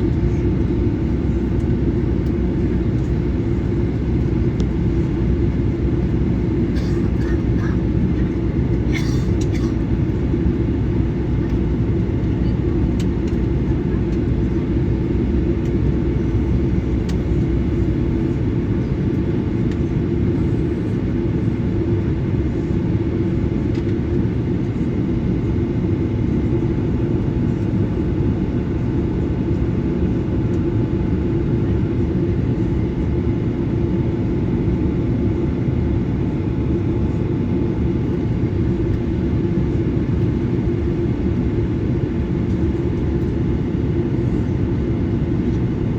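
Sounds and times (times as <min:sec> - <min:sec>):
airplane cabin engine rumble: 0:00.0 - 0:45.9.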